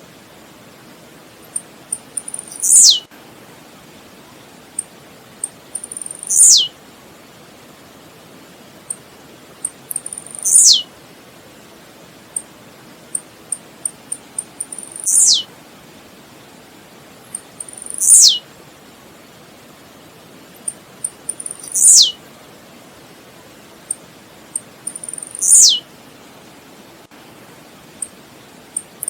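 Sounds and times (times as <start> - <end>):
steady hiss: 0.0 - 29.0
bird singing: 1.5 - 3.1, 5.4 - 6.7, 9.6 - 10.9, 13.5 - 15.5, 17.3 - 18.4, 20.6 - 22.2, 23.9 - 25.8.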